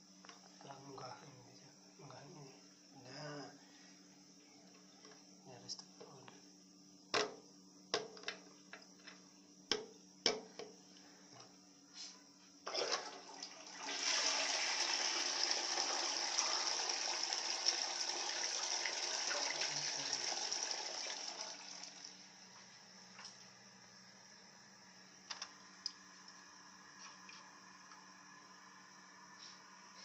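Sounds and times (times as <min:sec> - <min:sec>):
toilet flushing: 0:12.7 - 0:22.2.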